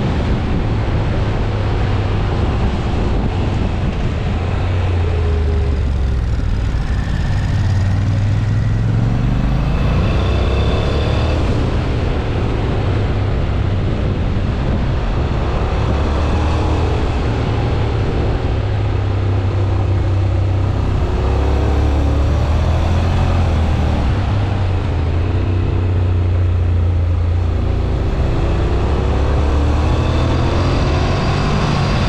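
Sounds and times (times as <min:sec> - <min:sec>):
motorcycle engine running under load: 0:02.9 - 0:09.9.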